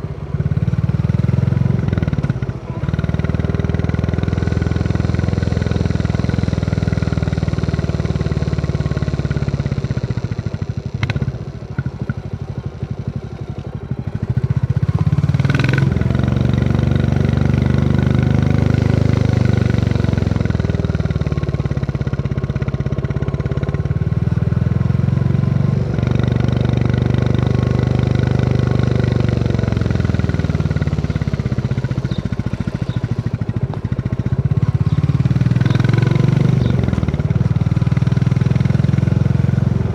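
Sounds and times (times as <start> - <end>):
motorcycle engine thumping: 29.1 - 38.4.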